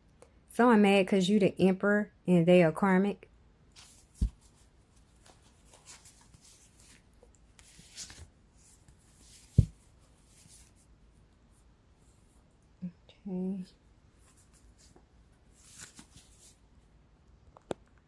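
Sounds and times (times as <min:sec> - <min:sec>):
cards rustling: 0:03.8 - 0:10.8, 0:14.3 - 0:16.6.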